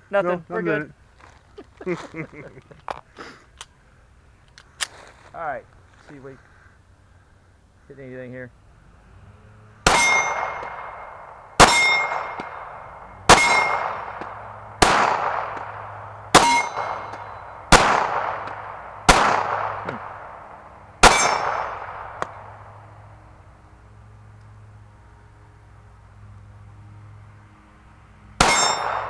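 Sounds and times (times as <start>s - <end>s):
pistol shots: 9.8s - 22.8s, 28.4s - 29.0s
steel target ringing clang: 9.9s - 20.2s, 21.0s - 22.4s, 28.4s - 29.0s.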